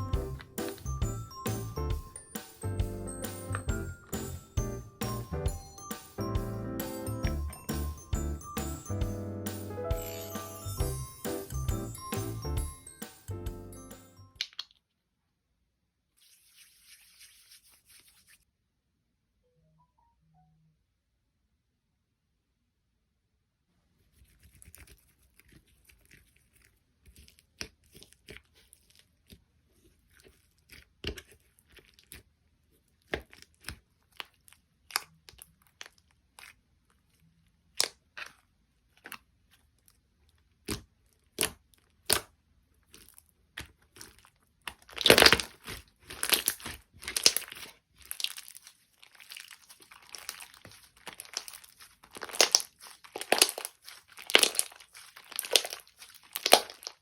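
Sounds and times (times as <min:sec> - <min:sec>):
slime clicking and crackling: 0:24.4 - 0:57.0.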